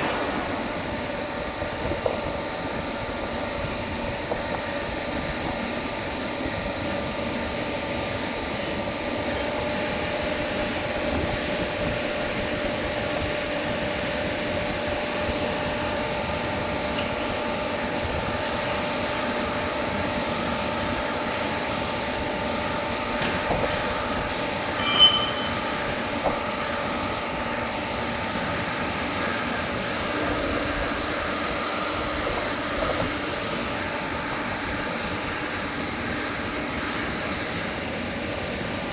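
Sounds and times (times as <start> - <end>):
sharp metal clank: 0.0 - 1.7, 24.7 - 25.8
high steady whine: 0.0 - 5.6, 20.8 - 38.9
lathe mechanical hum: 0.0 - 38.9.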